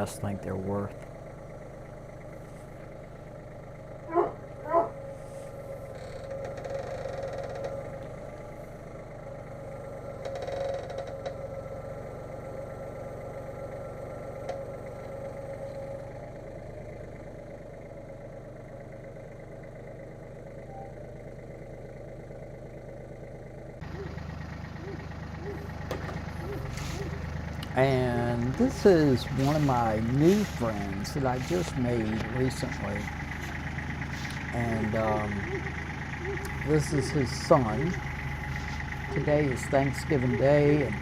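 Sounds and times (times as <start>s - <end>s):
engine idling: 0.0s - 41.0s.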